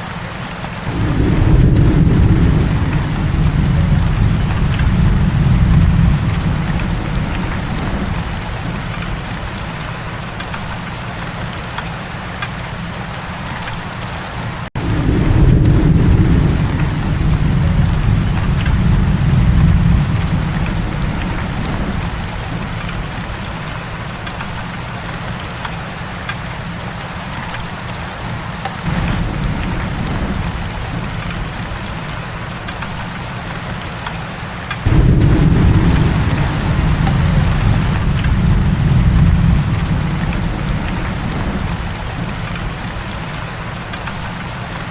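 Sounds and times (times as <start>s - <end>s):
heavy rain: 0.0s - 44.9s
rolling thunder: 0.8s - 10.0s, 14.8s - 24.4s, 28.9s - 32.8s, 34.8s - 44.5s.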